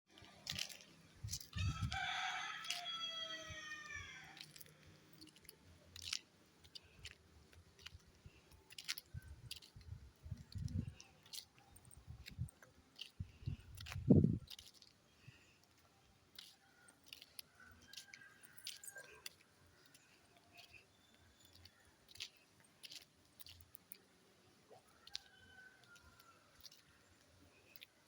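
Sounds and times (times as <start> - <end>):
rooster crowing: 1.5 - 4.4.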